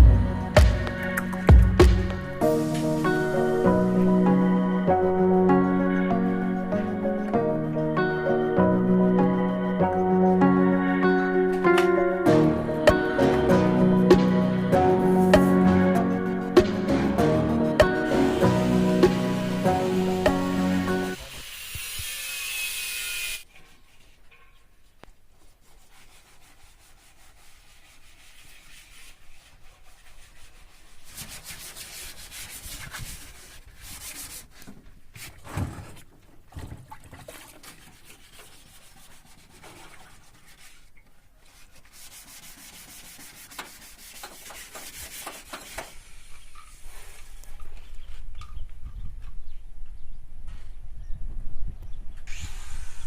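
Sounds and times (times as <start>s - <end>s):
hand sanding strokes: 12.7s - 24.3s, 25.3s - 34.8s, 37.6s - 47.4s.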